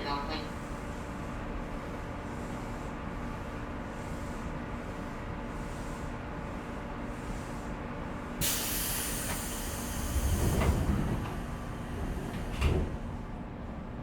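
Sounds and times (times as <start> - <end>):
air hiss: 8.4 - 11.6
train doors thumping shut: 8.4 - 13.5
train equipment hum: 8.4 - 14.0.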